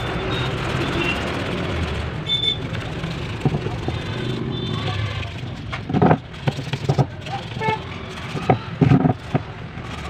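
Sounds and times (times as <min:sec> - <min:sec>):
road traffic: 0:00.0 - 0:10.0.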